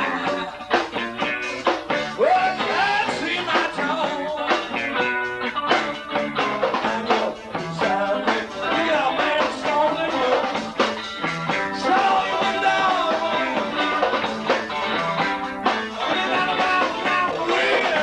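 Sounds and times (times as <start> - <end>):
rock trio playing instrumental: 0.0 - 18.0.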